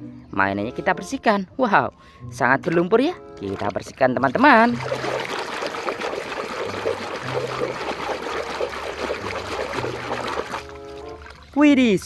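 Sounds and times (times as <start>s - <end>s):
water splashing and trickling: 2.6s - 12.0s.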